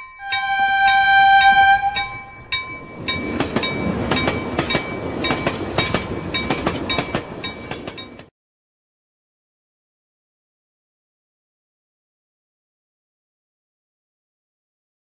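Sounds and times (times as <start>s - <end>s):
bell chime: 0.0s - 8.2s
train passing with wheel clatter: 0.0s - 8.3s.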